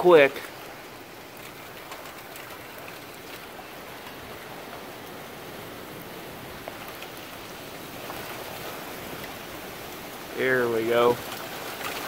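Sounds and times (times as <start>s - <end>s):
raindrops ticking nearby: 0.0s - 12.0s
wind: 0.0s - 12.0s
heavy rain hissing: 2.7s - 12.0s.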